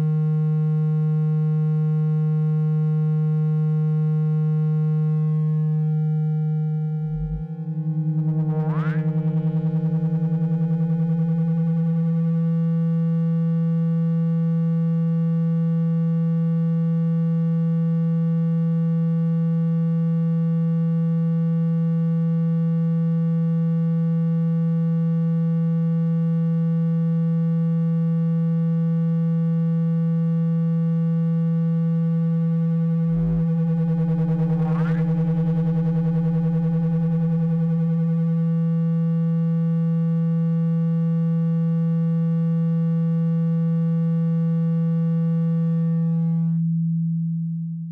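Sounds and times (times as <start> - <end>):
low buzzing electronic tone: 0.0 - 47.9.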